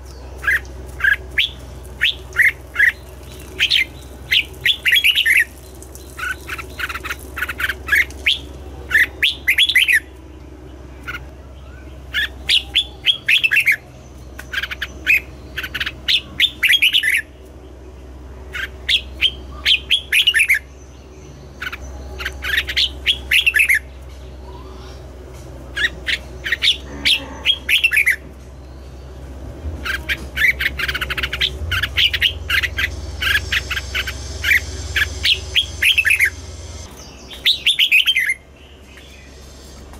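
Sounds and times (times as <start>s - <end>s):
bird singing whistled phrases: 11.6s - 13.8s, 29.8s - 36.4s, 37.2s - 38.4s.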